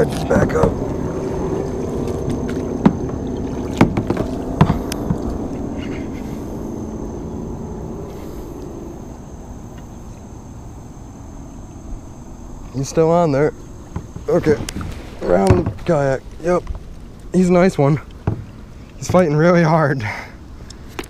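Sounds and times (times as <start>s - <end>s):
paddle splashing in water: 0.0s - 6.5s, 13.8s - 17.2s
sharp knocks: 2.3s - 5.4s.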